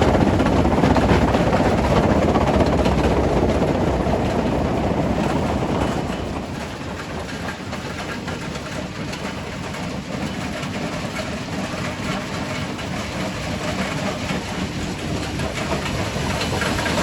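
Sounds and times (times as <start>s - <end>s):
rock crusher machinery: 0.0s - 17.0s.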